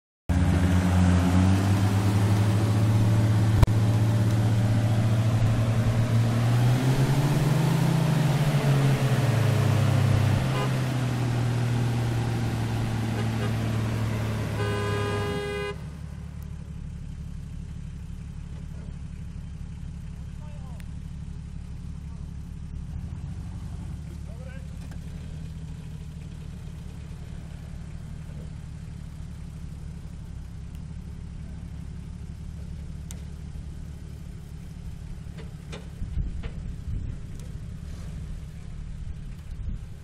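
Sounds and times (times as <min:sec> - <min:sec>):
off-road vehicle engine running: 0:00.3 - 0:40.0
car horn toot: 0:10.4 - 0:11.0, 0:12.9 - 0:16.0.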